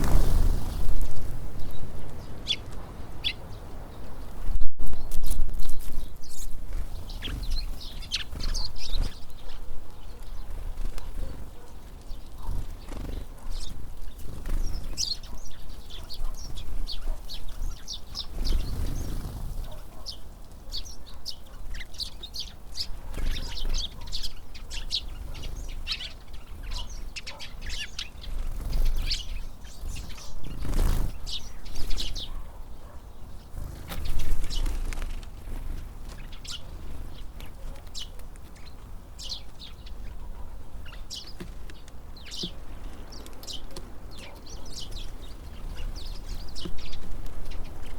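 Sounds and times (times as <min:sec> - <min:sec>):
wind buffeting microphone: 0:00.0 - 0:09.6
birds chirping: 0:00.0 - 0:47.9.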